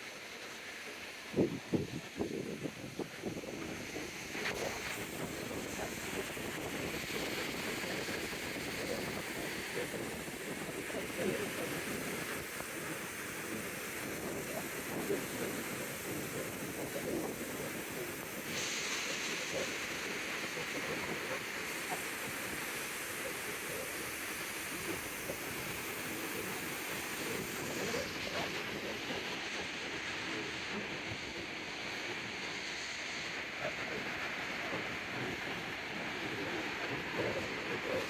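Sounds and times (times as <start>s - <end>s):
wind buffeting microphone: 1.3s - 12.6s.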